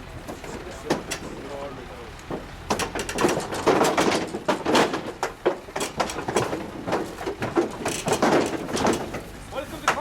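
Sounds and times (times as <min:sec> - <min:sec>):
cow hooves clattering: 0:02.2 - 0:10.0.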